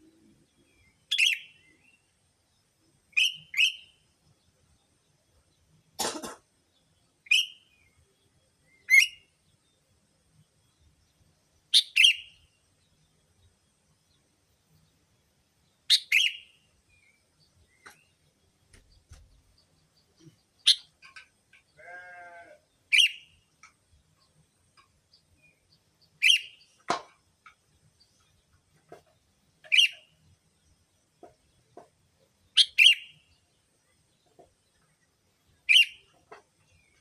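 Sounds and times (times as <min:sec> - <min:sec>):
bird chirps: 0:11.7 - 0:12.4, 0:15.9 - 0:16.6, 0:18.7 - 0:21.0, 0:25.6 - 0:26.7, 0:29.6 - 0:30.2, 0:32.6 - 0:33.3, 0:35.7 - 0:37.0.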